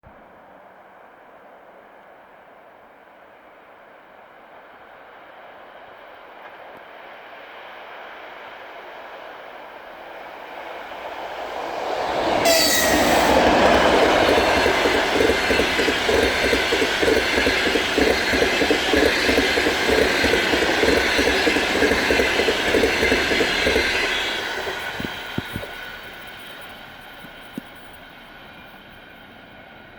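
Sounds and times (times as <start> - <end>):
locomotive high tone dropping in pitch: 11.5 - 27.1
train wheels clicking over rail joints: 12.0 - 29.6.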